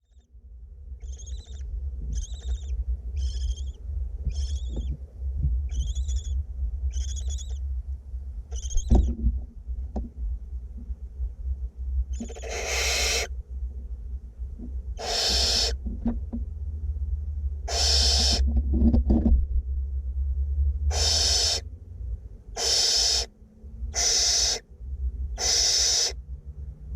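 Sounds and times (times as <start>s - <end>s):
steady low hum: 0.0s - 26.9s
owlets hissing snore calls: 1.1s - 4.7s, 12.2s - 13.3s, 15.0s - 15.8s, 17.7s - 18.4s, 20.9s - 21.6s, 22.6s - 23.3s, 23.9s - 24.6s, 25.4s - 26.2s.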